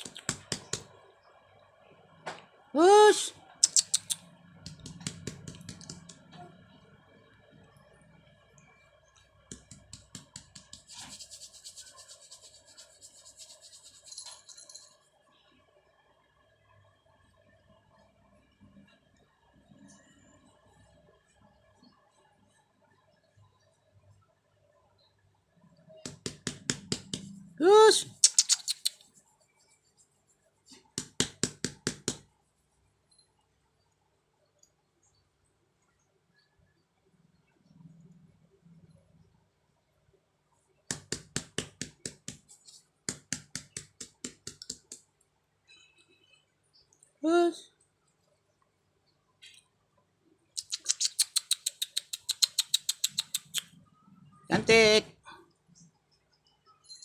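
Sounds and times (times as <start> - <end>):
kittens scratching and scrabbling: 0.0 - 0.9, 3.6 - 6.3, 9.5 - 14.8, 40.9 - 45.0, 50.6 - 53.6.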